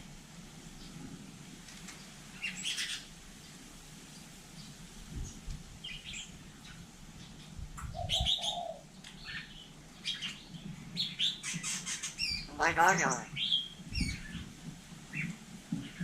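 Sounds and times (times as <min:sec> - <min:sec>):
myna calls and chirps: 0:12.2 - 0:13.6.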